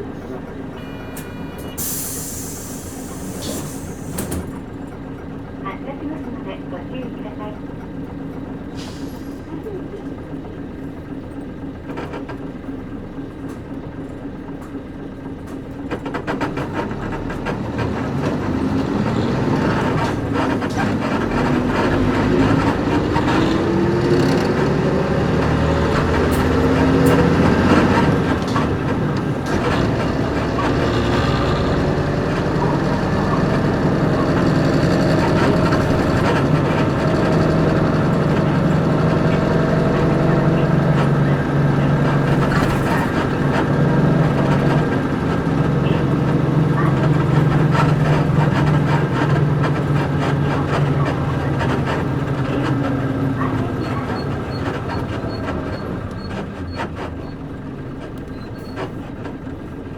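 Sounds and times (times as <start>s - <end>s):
bus diesel engine pulling away: 0.0s - 59.9s
gear change: 15.5s - 59.8s.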